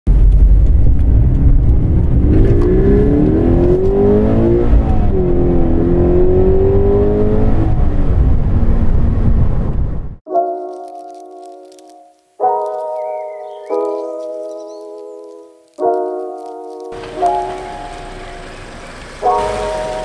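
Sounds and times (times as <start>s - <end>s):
car engine accelerating hard: 0.1s - 9.3s, 17.0s - 20.0s.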